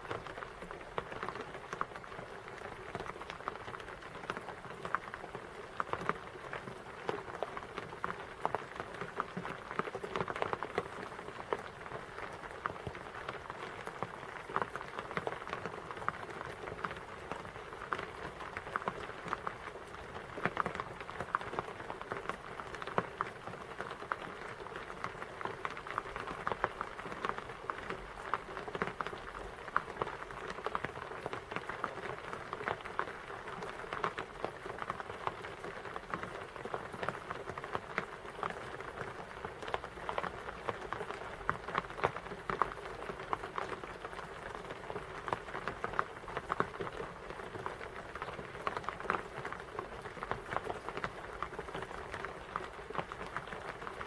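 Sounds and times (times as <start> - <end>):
rain pattering: 0.0 - 54.0.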